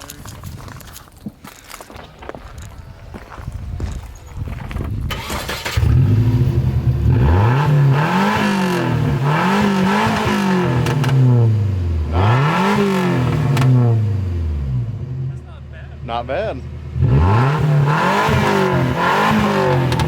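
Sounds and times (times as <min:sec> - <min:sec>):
car engine starting and revving: 0:05.0 - 0:15.3, 0:16.6 - 0:20.0.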